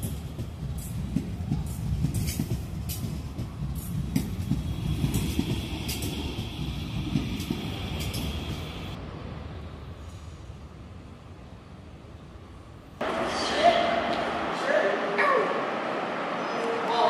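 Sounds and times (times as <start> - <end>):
wheels clicking over rail joints: 0.0 - 9.0
electric train rumbling past: 0.0 - 17.0.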